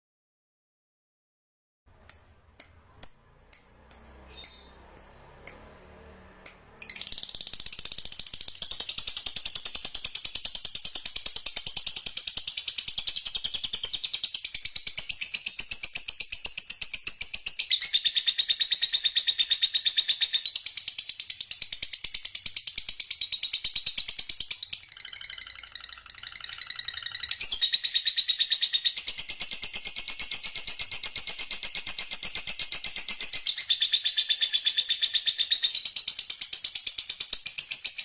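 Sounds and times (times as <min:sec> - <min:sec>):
songbird trilling: 0:03.9 - 0:08.0, 0:17.1 - 0:29.5.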